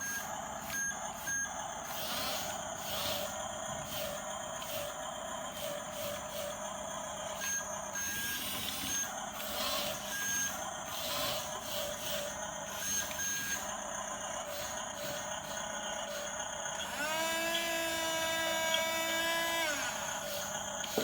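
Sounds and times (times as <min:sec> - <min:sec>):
toy motor whine: 0:00.1 - 0:06.6, 0:07.3 - 0:21.0.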